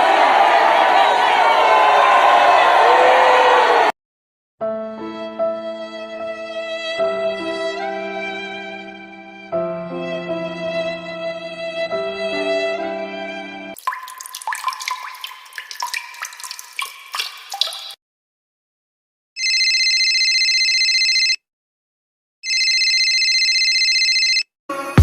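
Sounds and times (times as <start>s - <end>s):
water drops plinking: 13.8s - 18.0s.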